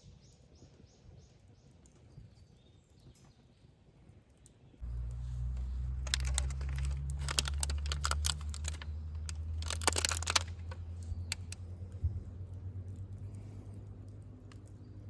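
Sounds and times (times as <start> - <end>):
wood fire crackling: 4.2 - 15.0
low rumble: 4.8 - 15.0.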